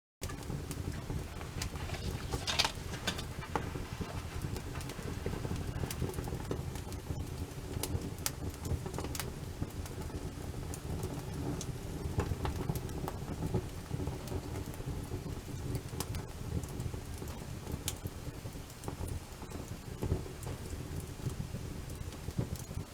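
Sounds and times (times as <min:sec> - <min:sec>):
campfire crackling and popping: 0:00.2 - 0:22.9.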